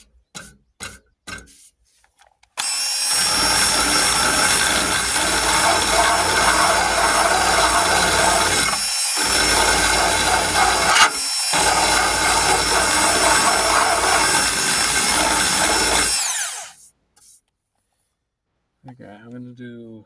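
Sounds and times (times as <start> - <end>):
abrasive wheel grinding steel: 2.6 - 16.8
electric drill motor whine: 2.6 - 16.8.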